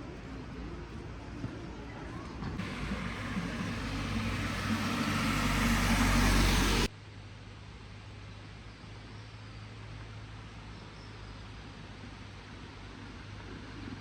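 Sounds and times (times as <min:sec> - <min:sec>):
vehicle engine rumble: 0:00.0 - 0:06.9
tyre hiss on wet road: 0:02.6 - 0:06.9.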